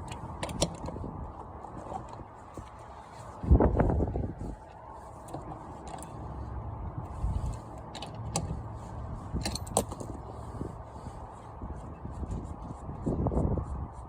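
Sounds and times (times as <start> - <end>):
metallic clinks and knocks: 9.3 - 10.2.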